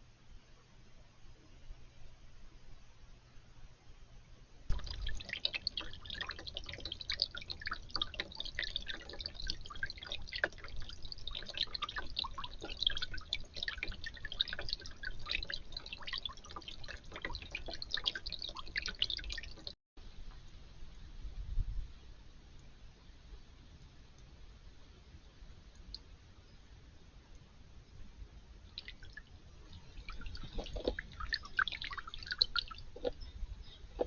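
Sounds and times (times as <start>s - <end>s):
water dripping into bird bath: 4.7s - 19.8s, 25.6s - 26.1s, 28.6s - 34.0s.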